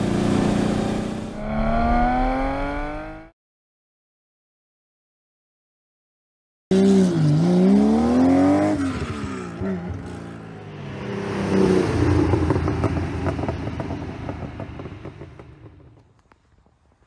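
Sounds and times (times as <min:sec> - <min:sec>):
car engine accelerating: 0:00.0 - 0:03.3.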